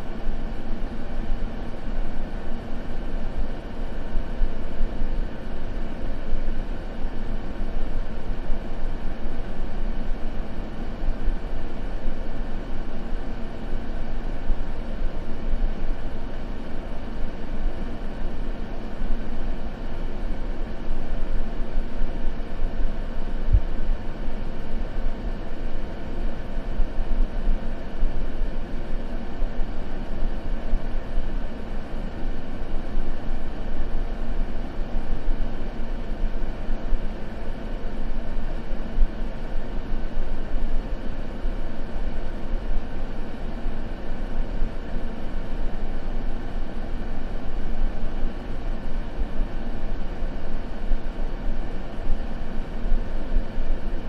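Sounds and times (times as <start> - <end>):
deep white noise: 0.0 - 54.0.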